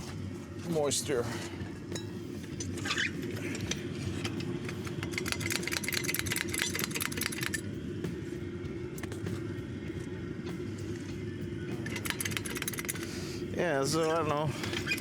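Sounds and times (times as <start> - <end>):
diesel heater rumbling: 0.0 - 15.0
patter of clicks: 11.8 - 13.2.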